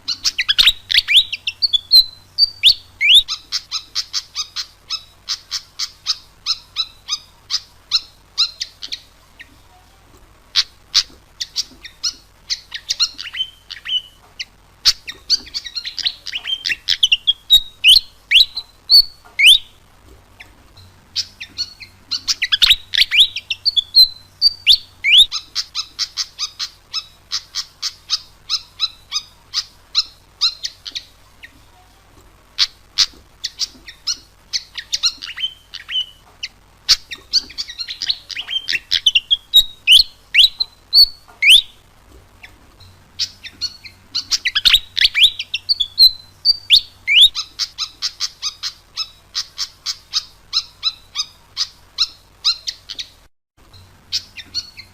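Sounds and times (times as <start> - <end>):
faint low hum: 0.0 - 54.9
bird chirping and whistling: 0.1 - 9.1, 10.6 - 14.2, 14.8 - 19.8, 21.2 - 31.1, 32.6 - 41.8, 43.2 - 53.2, 54.1 - 54.9.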